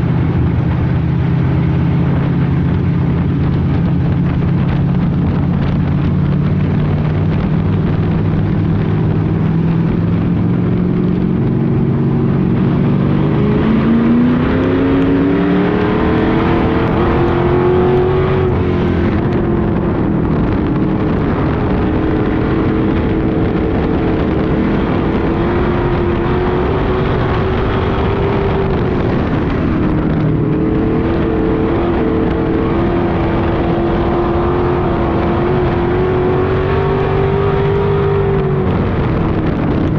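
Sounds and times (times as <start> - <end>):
race car engines revving: 0.0 - 39.9.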